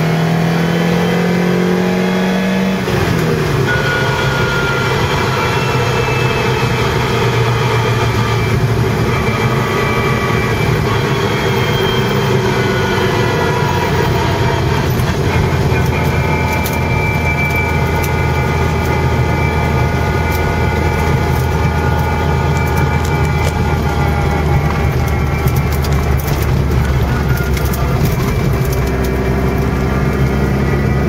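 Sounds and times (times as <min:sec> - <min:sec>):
car engine running: 0:00.0 - 0:31.0
clicks and rattles: 0:20.2 - 0:29.8.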